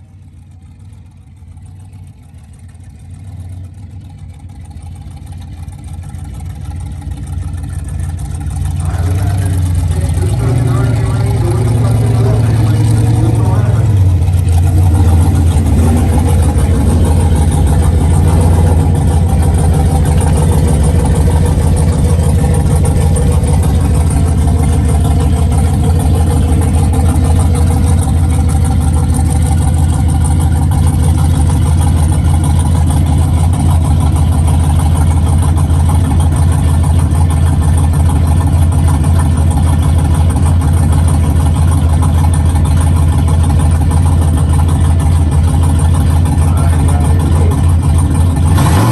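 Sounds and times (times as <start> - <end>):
truck engine droning: 0.0 - 48.9.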